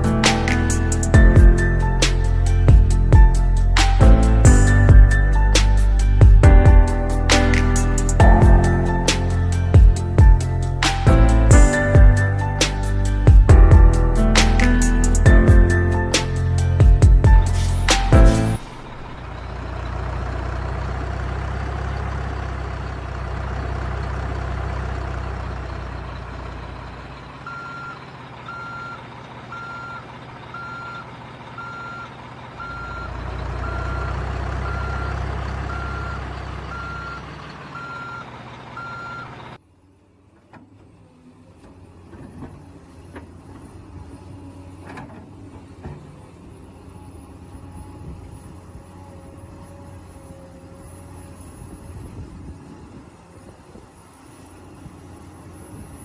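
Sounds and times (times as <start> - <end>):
dump truck engine rumbling: 0.0 - 56.0
reversing beeper: 8.2 - 10.5, 27.4 - 39.6.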